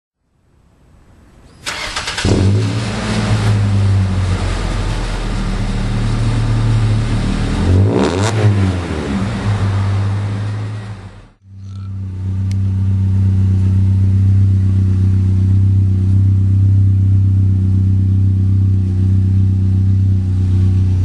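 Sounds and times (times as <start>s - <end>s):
truck engine running: 2.9s - 21.0s.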